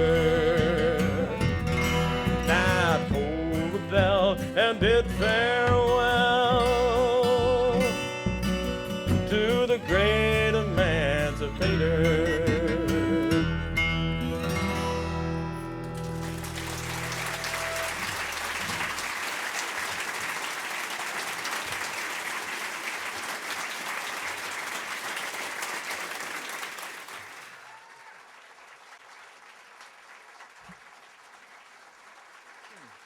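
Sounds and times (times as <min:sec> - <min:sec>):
audience applauding: 0:15.8 - 0:33.0.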